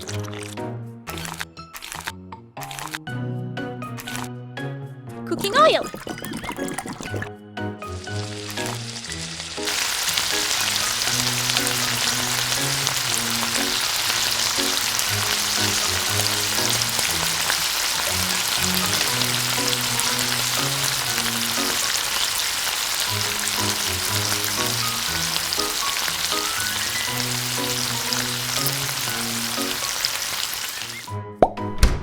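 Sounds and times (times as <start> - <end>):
light background music: 0.0 - 32.0
food sizzling in hot oil: 7.9 - 31.1.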